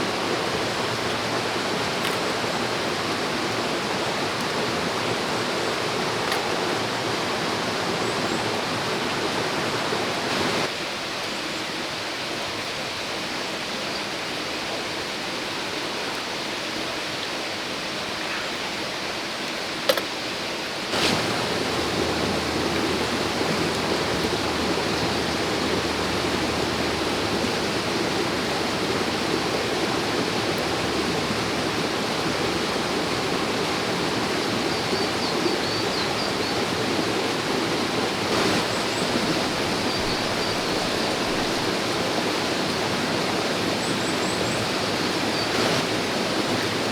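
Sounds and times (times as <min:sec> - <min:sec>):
stream water flowing: 0:00.0 - 0:46.9
sharp click: 0:19.9 - 0:20.1.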